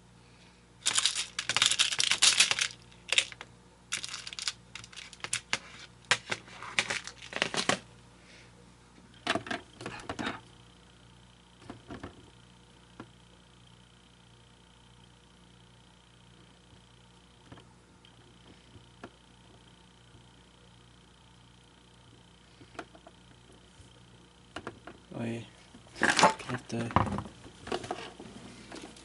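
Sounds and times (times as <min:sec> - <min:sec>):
small hard objects rattling: 0:00.8 - 0:07.8.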